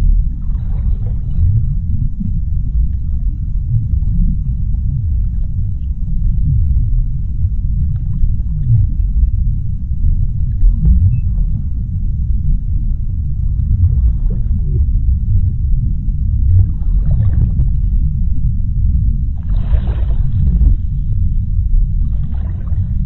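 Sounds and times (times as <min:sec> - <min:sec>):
deep underwater rumble: 0:00.0 - 0:23.0
faint crackles: 0:00.0 - 0:23.0.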